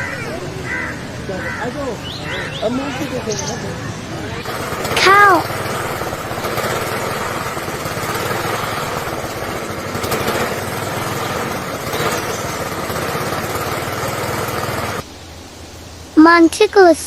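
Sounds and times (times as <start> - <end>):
engine running with low flutter: 4.3 - 15.1.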